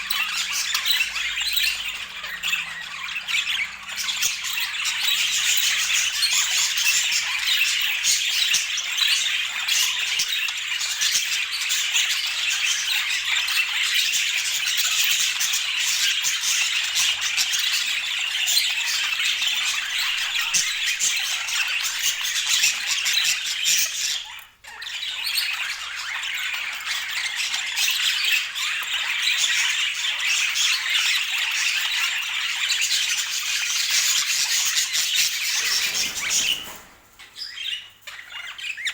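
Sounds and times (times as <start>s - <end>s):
budgerigars chattering and squawking: 0.0s - 38.9s.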